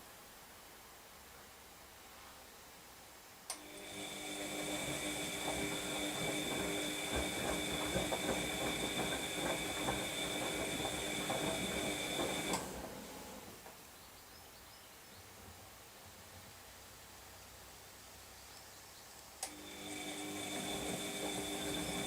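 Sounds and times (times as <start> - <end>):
washing machine motor click: 3.5 - 13.0
washing machine motor whine: 3.6 - 13.6, 19.5 - 22.0.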